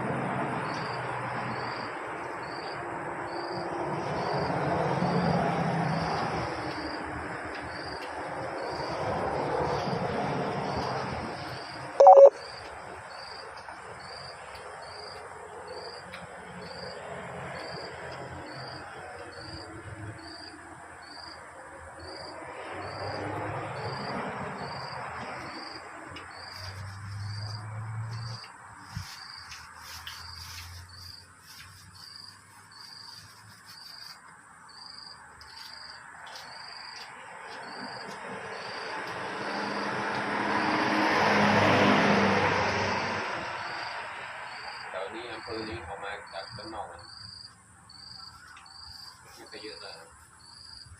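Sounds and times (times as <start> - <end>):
passing vehicle: 0.0 - 12.0, 13.9 - 34.2, 35.2 - 47.5
insect chirping: 0.6 - 42.1, 43.2 - 50.9
two-note horn beep: 12.0 - 12.4
vehicle passing: 22.3 - 31.6, 37.1 - 46.9.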